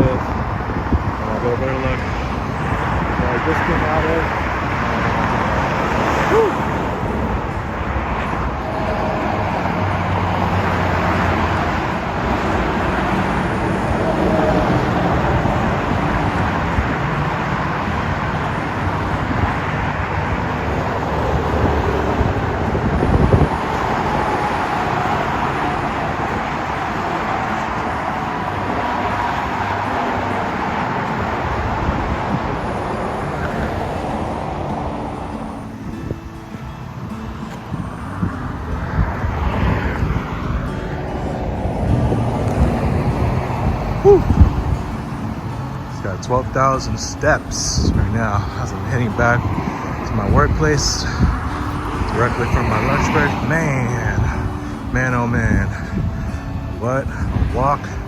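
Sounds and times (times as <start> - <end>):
road traffic passing: 0.0 - 58.0
man shouting: 6.2 - 6.8, 44.0 - 44.4.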